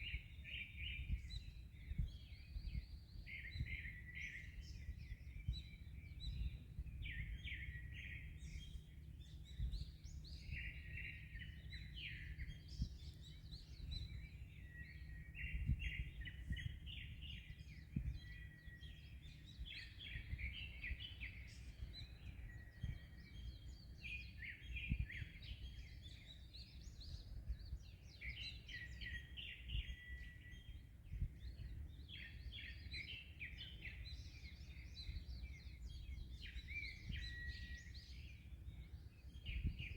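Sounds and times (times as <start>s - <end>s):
wind rumble: 0.0s - 23.9s, 34.9s - 39.9s
birds chirping and singing: 0.0s - 39.9s.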